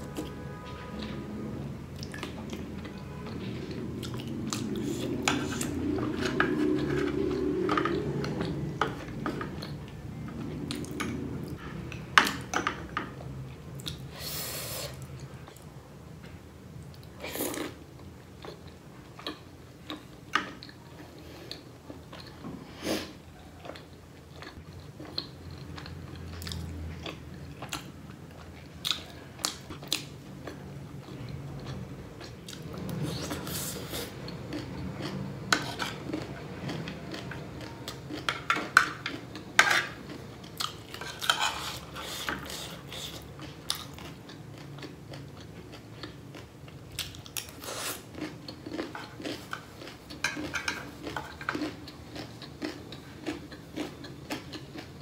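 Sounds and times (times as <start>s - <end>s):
chewing and biting food: 2.0s - 12.4s, 23.5s - 55.0s.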